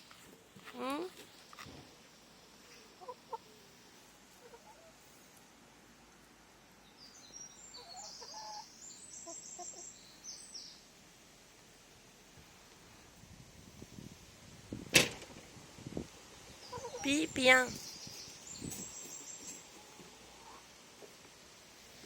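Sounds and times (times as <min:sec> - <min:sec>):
hen clucking: 0:02.9 - 0:03.6, 0:04.3 - 0:05.0, 0:16.6 - 0:17.7, 0:19.7 - 0:20.7.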